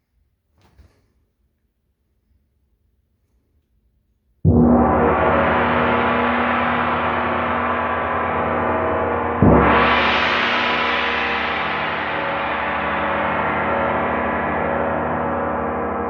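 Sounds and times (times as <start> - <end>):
gong ringing: 4.7 - 16.0.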